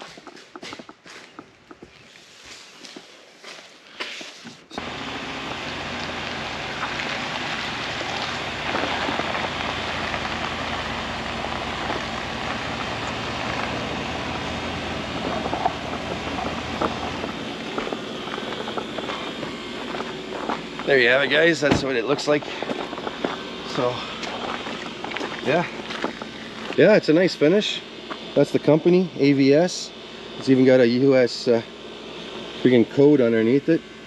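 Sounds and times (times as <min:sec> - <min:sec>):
rain hissing on truck: 0:04.8 - 0:21.6.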